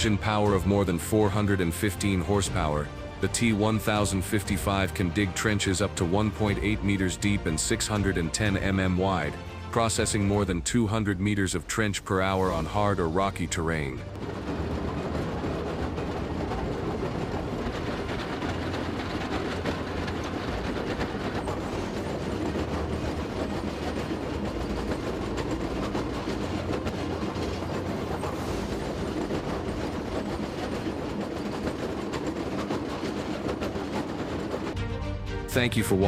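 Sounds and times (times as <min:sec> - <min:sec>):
trencher engine rumbling: 0:12.2 - 0:34.8.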